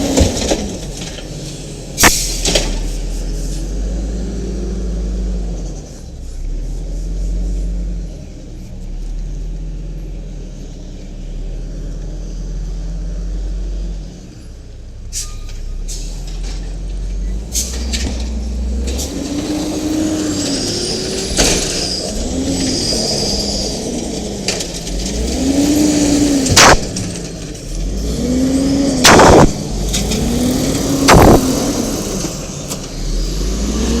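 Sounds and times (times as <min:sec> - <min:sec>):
garbage truck engine: 0:00.0 - 0:34.0
loud sharp bangs: 0:26.4 - 0:27.4, 0:29.0 - 0:32.1.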